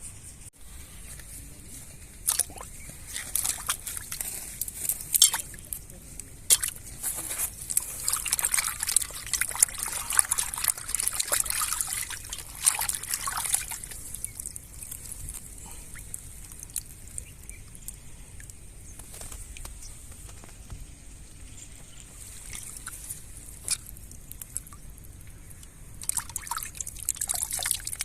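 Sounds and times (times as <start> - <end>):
water splashing and trickling: 0.7 - 20.8, 21.6 - 28.0
water drips: 2.2 - 20.1, 22.0 - 28.0.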